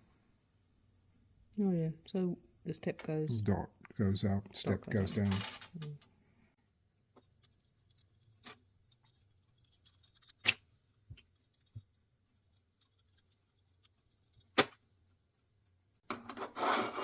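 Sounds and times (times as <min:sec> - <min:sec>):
scraping handling noise: 0:05.0 - 0:06.0.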